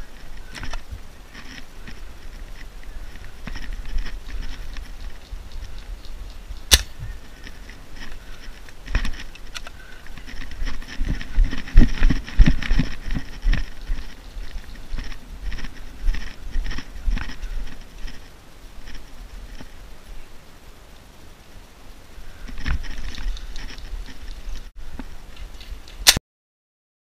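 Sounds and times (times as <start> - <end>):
rustling of gear: 0.0 - 19.9, 22.4 - 26.2
sharp snap: 6.7 - 7.0.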